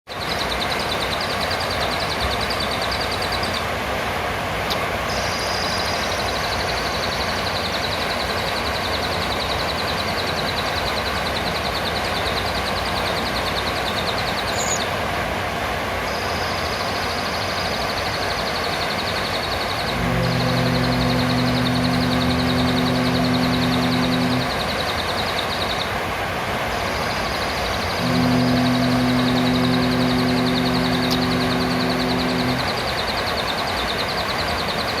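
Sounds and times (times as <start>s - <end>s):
low droning hum: 19.6s - 25.0s, 27.9s - 33.2s.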